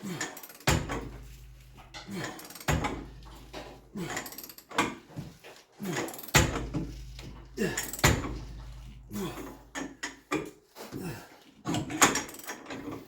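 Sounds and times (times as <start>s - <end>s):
wrench clanking on metal bolt: 0.2s - 5.0s.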